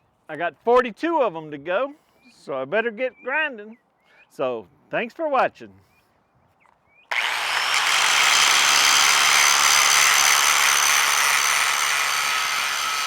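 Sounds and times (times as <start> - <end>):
power grinder grinding metal: 7.1 - 13.0.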